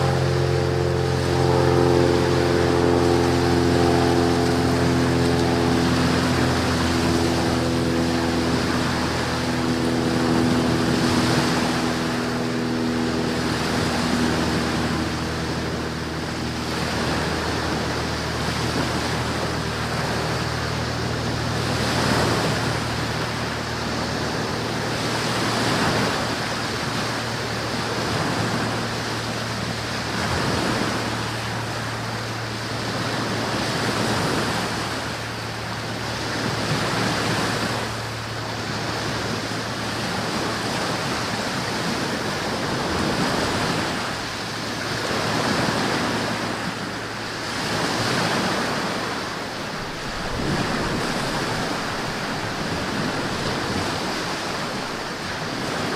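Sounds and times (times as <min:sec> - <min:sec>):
higher hum tones: 0:00.0 - 0:55.9
low steady hum: 0:00.0 - 0:55.9
rushing noise: 0:42.9 - 0:55.9.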